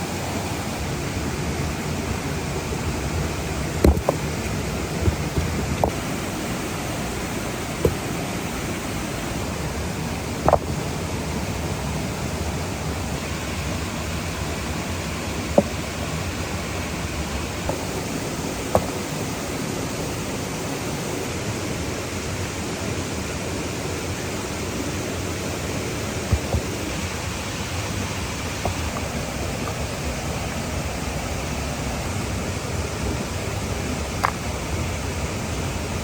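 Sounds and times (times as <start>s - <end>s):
waterfall rushing: 0.0s - 36.0s
sharp knocks: 3.8s - 4.2s, 10.4s - 10.8s, 15.6s - 15.8s, 18.7s - 19.1s.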